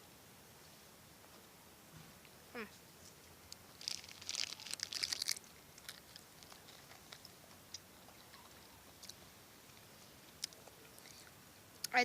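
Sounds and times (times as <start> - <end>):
potato chip crunching: 3.6 - 7.3.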